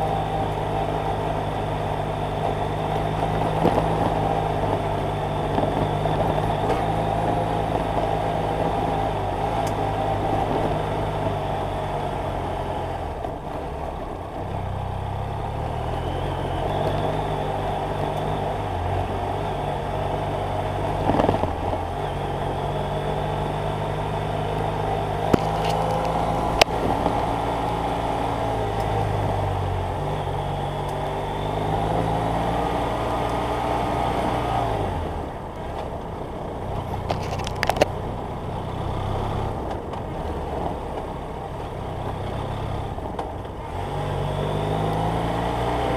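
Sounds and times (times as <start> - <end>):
motorcycle engine running: 0.0 - 45.9
road and wind noise: 0.0 - 45.9.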